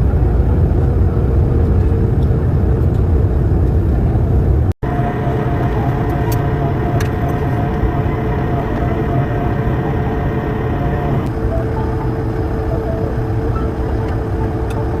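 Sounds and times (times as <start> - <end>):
jet engine roar in cabin: 0.0 - 15.0.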